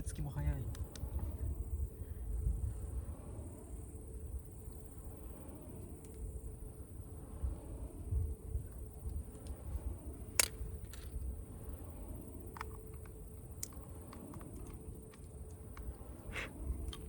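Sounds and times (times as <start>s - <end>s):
low fire rumble: 0.0s - 17.0s
wood fire crackling: 8.7s - 17.0s.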